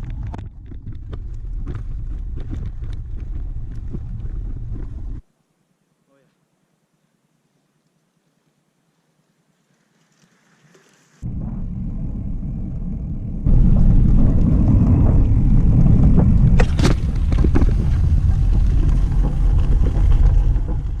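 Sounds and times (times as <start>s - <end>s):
loud low rumble: 11.2s - 21.0s.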